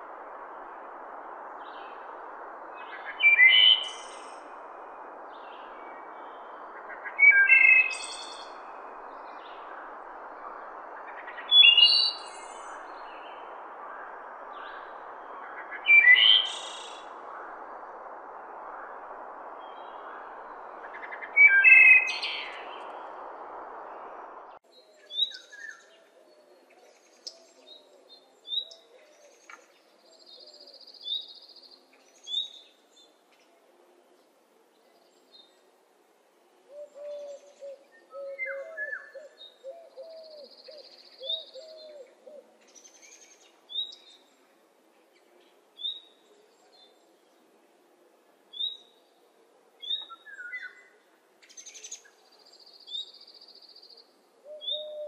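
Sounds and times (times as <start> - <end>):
steady hiss: 0.0 - 24.6.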